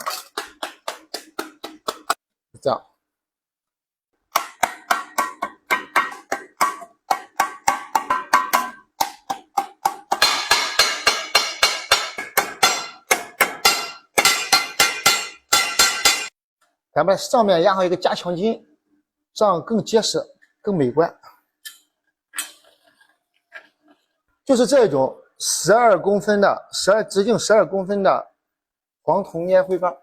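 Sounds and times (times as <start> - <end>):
hammer on brass sheet metal: 4.4 - 16.4.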